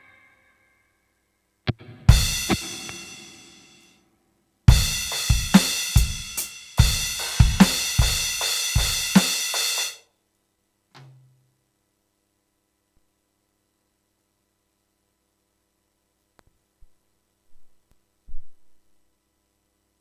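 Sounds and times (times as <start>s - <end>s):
drum stick click: 1.7s - 3.5s
crash cymbal ringing: 2.0s - 3.8s, 4.7s - 10.0s
drum beat with cymbals: 2.1s - 3.8s, 4.7s - 10.0s.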